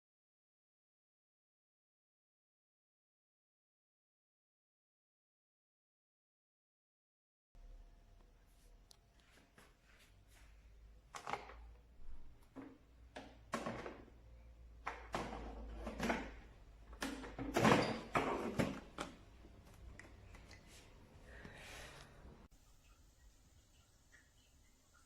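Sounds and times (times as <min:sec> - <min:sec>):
objects knocking and clattering: 0:11.2 - 0:19.9.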